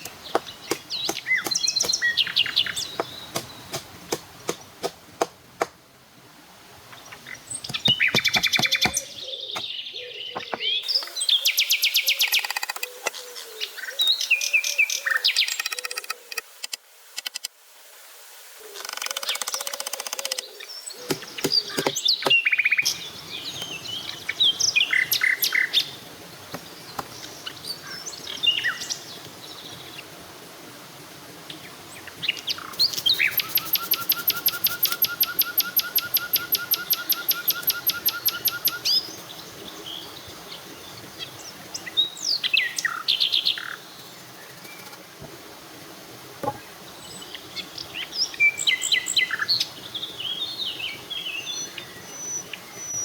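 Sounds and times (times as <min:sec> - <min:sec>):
birds chirping: 0:00.0 - 0:04.8, 0:06.9 - 0:16.0, 0:19.5 - 0:30.0
background hiss: 0:00.0 - 0:53.0.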